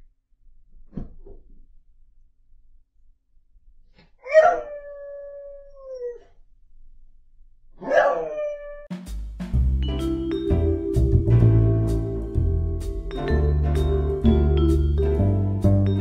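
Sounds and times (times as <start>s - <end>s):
dog howling: 4.3s - 6.2s, 7.8s - 8.8s.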